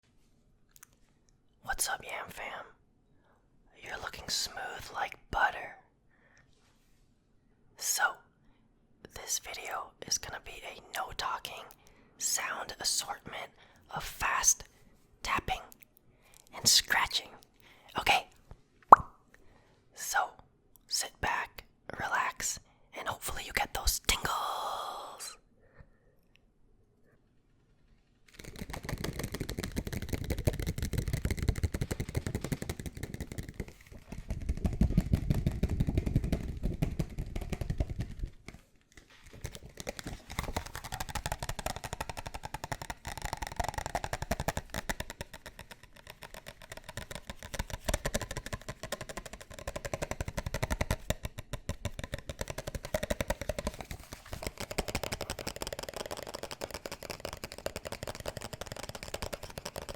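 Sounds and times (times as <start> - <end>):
fast tapping and scratching: 28.3 - 59.9.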